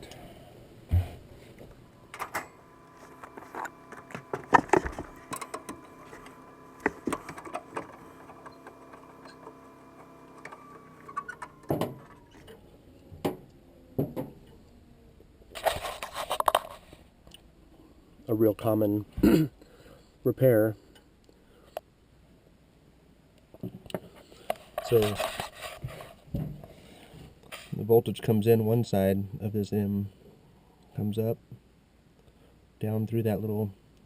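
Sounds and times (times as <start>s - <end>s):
furnace motor hum: 0.0s - 14.8s.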